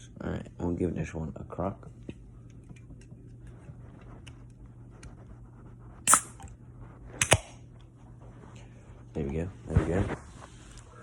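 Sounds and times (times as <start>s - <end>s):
can opening crack and hiss: 6.1s - 6.5s.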